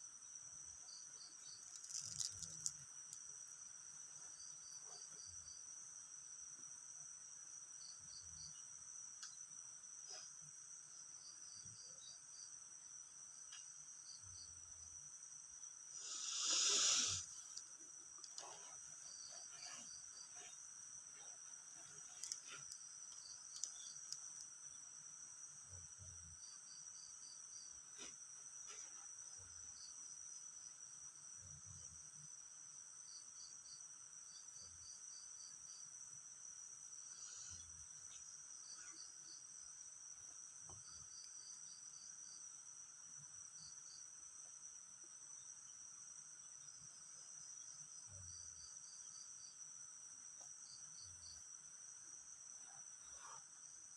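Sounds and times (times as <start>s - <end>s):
crickets and insects trilling: 0.8s - 5.6s, 14.0s - 42.8s.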